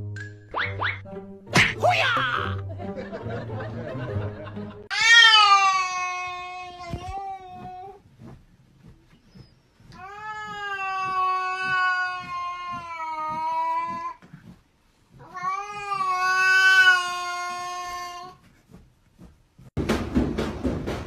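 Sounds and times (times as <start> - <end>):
cat yowling: 4.9 - 7.9, 10.0 - 14.2, 15.2 - 18.4.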